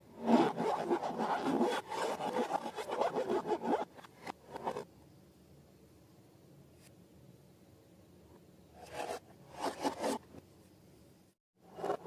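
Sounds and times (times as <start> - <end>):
rubbing and scraping strokes: 0.1 - 4.8, 8.8 - 10.2, 11.7 - 12.0.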